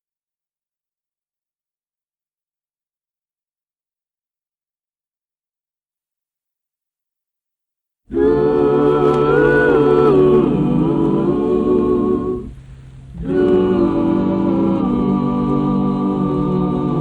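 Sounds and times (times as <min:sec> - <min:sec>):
wordless vocal harmony: 0:08.1 - 0:17.0.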